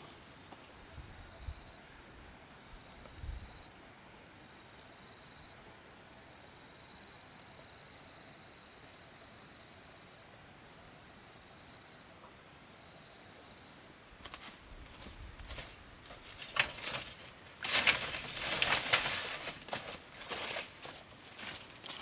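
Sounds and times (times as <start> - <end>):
faint insect trill: 0.0 - 22.0
rustling and clicking handling noises: 14.2 - 22.0.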